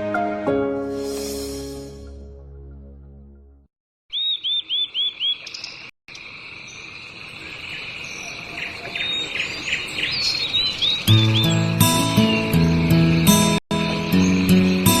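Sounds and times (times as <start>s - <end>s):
music: 0.0s - 3.7s, 11.1s - 15.0s
short bird chirps: 4.1s - 5.9s.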